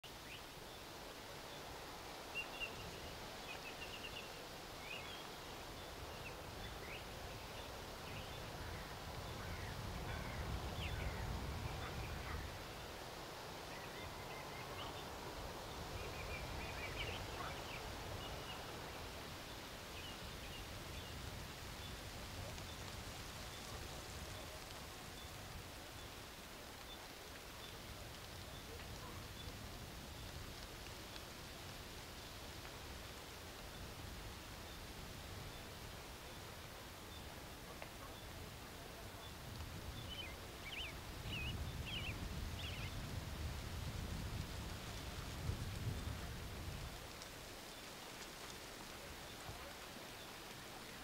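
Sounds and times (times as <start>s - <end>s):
low wind rumble: 4.2s - 50.1s
small birds chirping and trilling: 39.2s - 43.0s.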